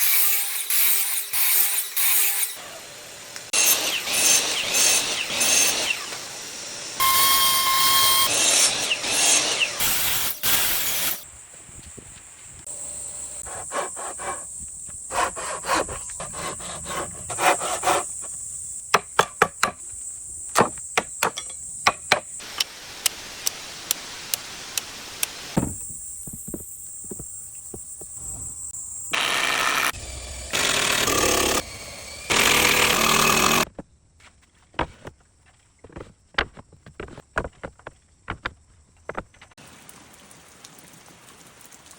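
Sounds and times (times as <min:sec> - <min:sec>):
power tools cutting wood: 0:00.0 - 0:11.2, 0:29.1 - 0:33.7
steady high hiss: 0:22.4 - 0:26.2.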